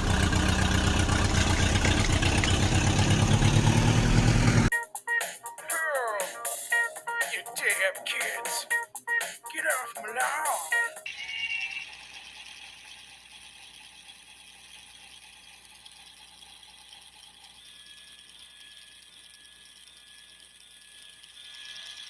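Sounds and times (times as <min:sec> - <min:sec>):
toy motor whirring: 0:11.0 - 0:22.0
fine rapid ticking: 0:11.9 - 0:22.0.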